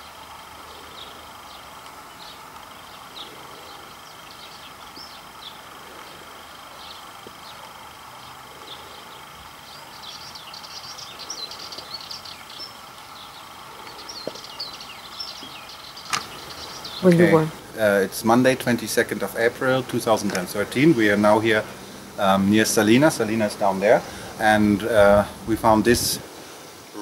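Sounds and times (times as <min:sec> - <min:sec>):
outdoor background hiss: 0:00.0 - 0:27.0
small birds chirping: 0:00.0 - 0:27.0
thin high tone: 0:16.4 - 0:26.1.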